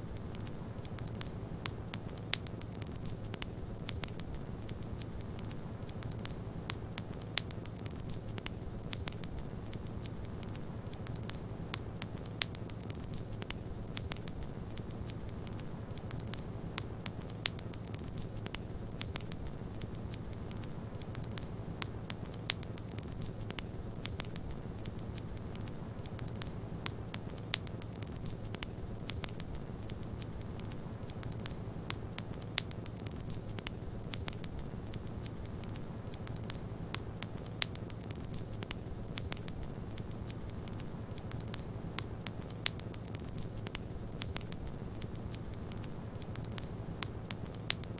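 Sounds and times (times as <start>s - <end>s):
wood fire crackling and popping: 0.0s - 47.9s.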